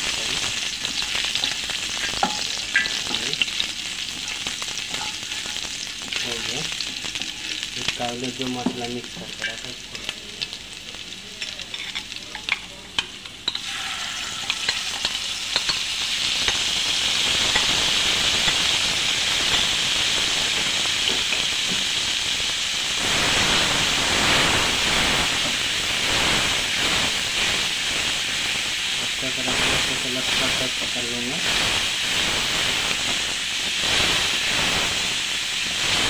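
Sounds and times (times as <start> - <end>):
garlic crackling in hot oil: 0.0 - 36.0
loud sizzle in a pan: 0.0 - 36.0
spatula stirring in a pan: 0.5 - 7.4, 11.4 - 16.7.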